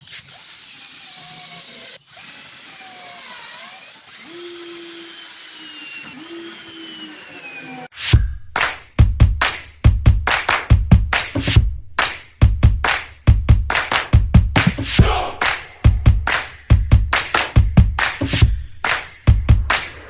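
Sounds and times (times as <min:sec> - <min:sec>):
cordless drill motor whirring: 0:00.0 - 0:07.9
music with heavy beat: 0:08.2 - 0:20.0.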